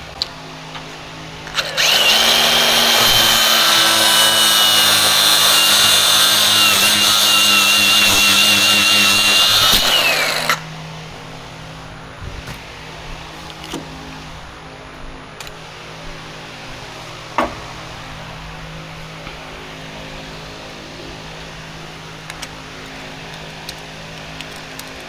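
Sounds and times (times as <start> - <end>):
power tool whining: 1.4 - 10.7.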